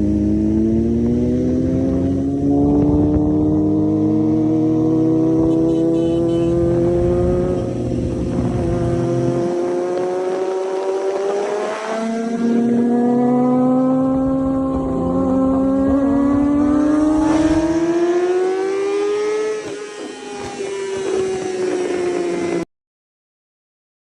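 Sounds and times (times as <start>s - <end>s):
motorcycle engine running: 0.0s - 11.3s, 12.0s - 19.0s.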